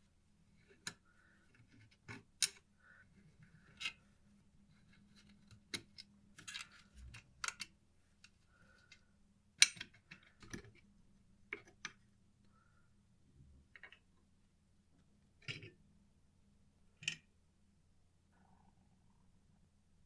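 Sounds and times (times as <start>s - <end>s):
faint steady hum: 0.0s - 20.0s
small tools clicking and knocking: 0.7s - 2.6s, 9.6s - 10.8s.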